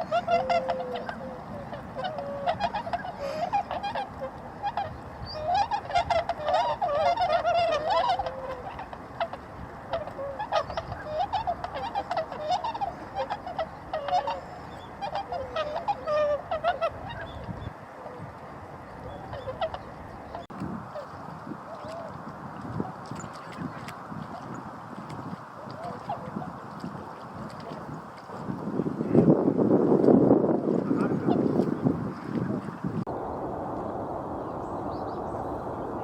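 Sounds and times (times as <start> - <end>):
flock of swans calling: 0.0 - 28.4.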